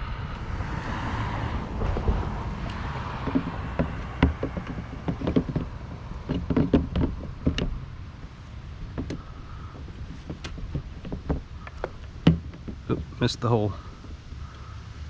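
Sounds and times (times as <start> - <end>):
plastic case knocking on metal: 3.2 - 7.8, 9.9 - 13.2.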